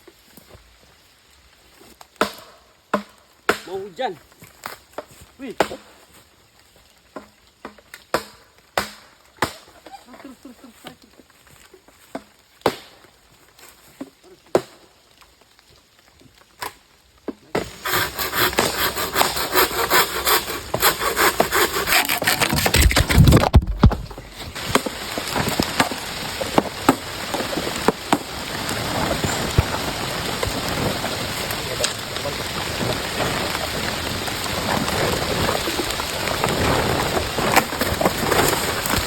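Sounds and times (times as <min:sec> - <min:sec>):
heavy rain on leaves: 0:00.0 - 0:02.9, 0:03.9 - 0:21.8, 0:22.7 - 0:39.0
sharp wooden knocks: 0:17.6 - 0:28.3.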